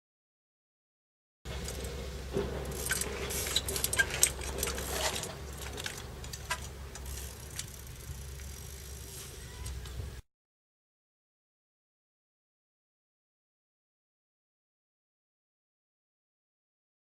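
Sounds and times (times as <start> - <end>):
clicks and rattles: 1.5 - 8.5.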